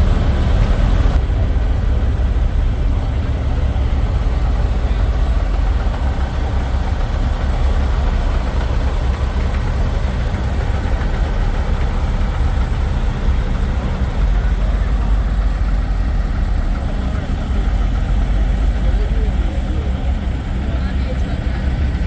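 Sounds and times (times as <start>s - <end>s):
diesel truck engines idling: 0.0s - 22.0s.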